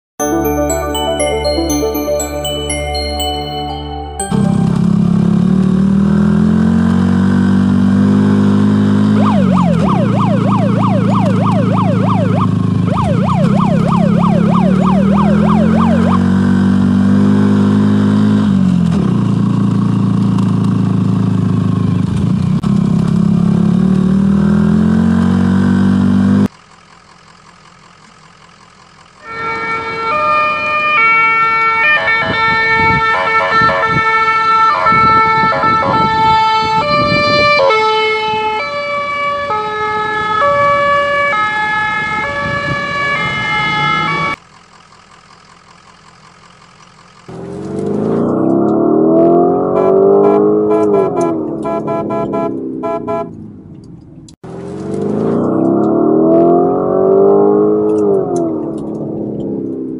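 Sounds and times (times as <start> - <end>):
steady tones changing in steps: 0.2 - 6.3, 9.2 - 16.4
police siren wailing: 9.1 - 16.8, 29.2 - 44.4, 49.3 - 53.3.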